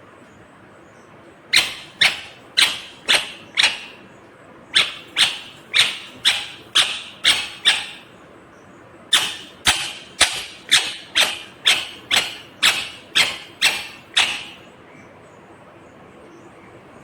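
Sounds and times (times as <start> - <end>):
parrot screeching: 1.5 - 4.1, 4.8 - 8.1, 9.1 - 14.7.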